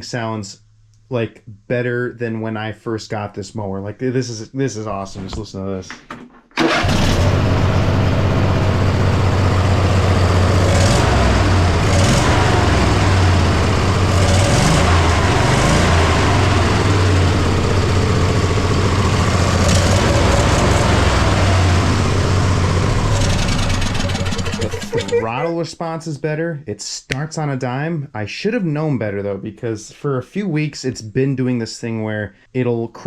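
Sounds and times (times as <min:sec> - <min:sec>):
riding mower engine running: 0:06.6 - 0:25.4.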